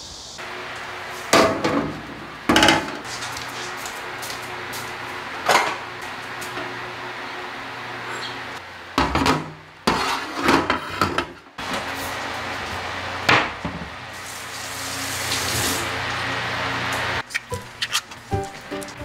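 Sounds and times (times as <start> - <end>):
steady hiss: 0.0 - 1.4
kitchenware clattering: 1.3 - 3.2, 9.0 - 11.4.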